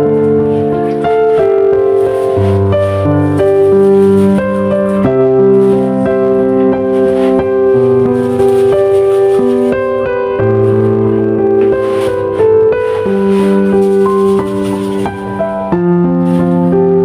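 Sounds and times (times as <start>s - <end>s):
instrumental background music: 0.0s - 17.0s.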